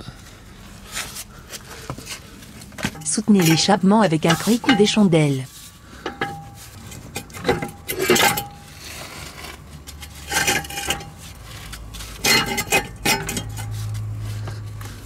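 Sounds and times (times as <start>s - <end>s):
metal parts clanking: 2.8s - 5.2s, 6.0s - 8.7s, 10.0s - 11.2s, 12.1s - 13.8s.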